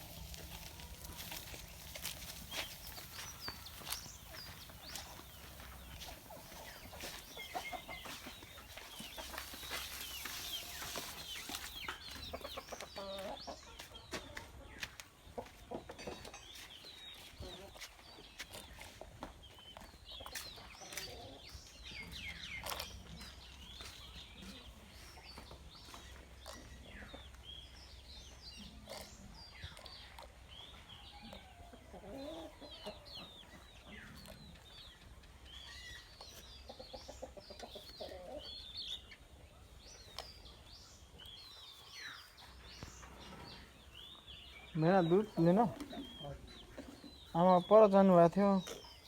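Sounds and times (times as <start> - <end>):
hens clucking: 0.0 - 27.4, 36.0 - 38.5
chicks chirping: 0.0 - 31.0, 31.9 - 49.0.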